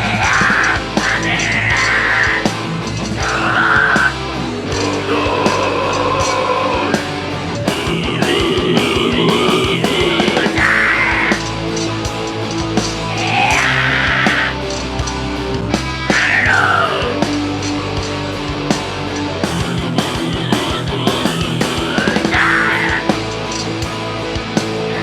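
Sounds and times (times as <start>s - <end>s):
harsh shouted vocals: 0.0s - 11.6s, 13.1s - 14.7s, 16.1s - 17.2s, 19.6s - 23.2s
heavy metal band playing: 0.0s - 25.0s.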